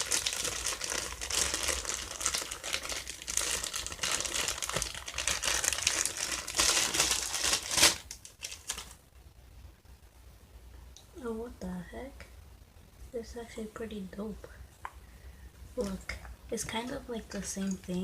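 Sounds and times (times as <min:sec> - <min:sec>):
bag crinkling and rustling: 0:00.0 - 0:09.0.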